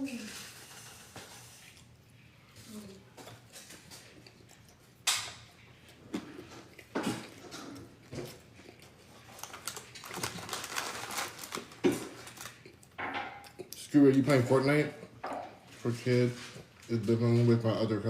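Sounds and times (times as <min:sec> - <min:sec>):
crinkly packaging rustling: 0:08.2 - 0:12.8.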